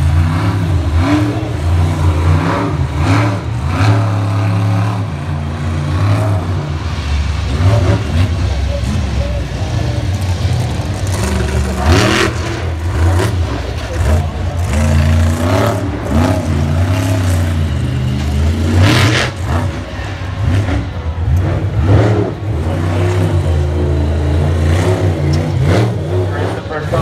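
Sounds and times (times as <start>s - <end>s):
monster truck engine revving: 0.0s - 27.0s.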